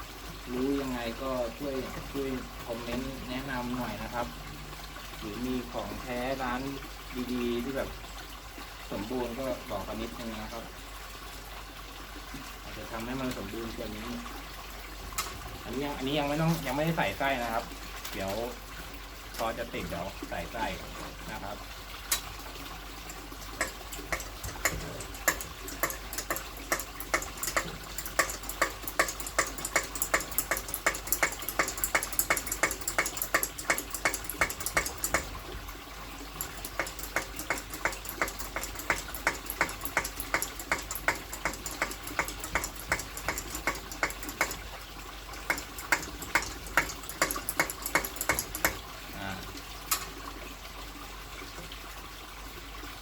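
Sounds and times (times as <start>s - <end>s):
hand air pump clicking: 23.6s - 35.3s, 36.4s - 44.6s, 45.5s - 48.8s.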